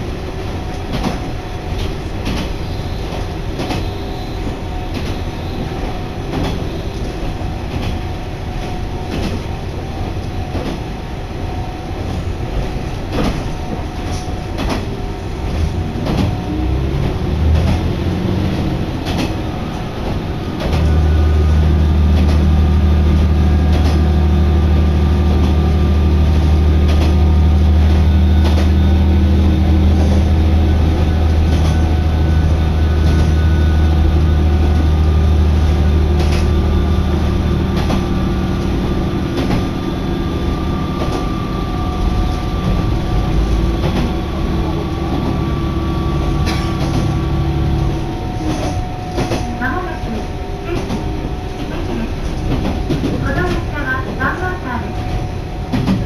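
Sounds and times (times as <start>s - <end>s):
deep diesel engine drone: 0.0s - 56.0s
train rumble: 0.0s - 56.0s.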